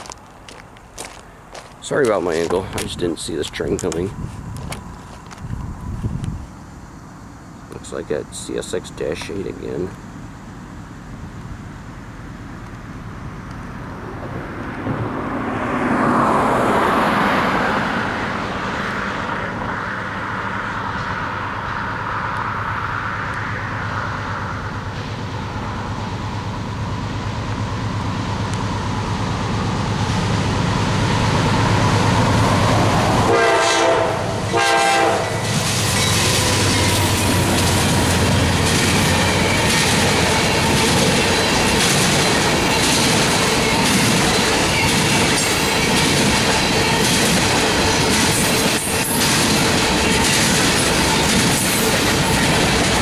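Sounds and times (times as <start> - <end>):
diesel locomotive engine rumble: 0.0 - 53.0
train horn blasts: 33.2 - 35.4
train wheels clacking over rail joints: 35.4 - 53.0.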